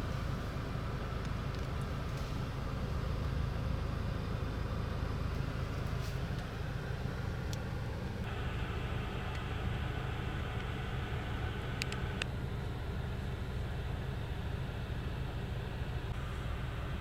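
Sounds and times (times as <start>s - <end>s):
car engine low drone: 0.0s - 17.0s.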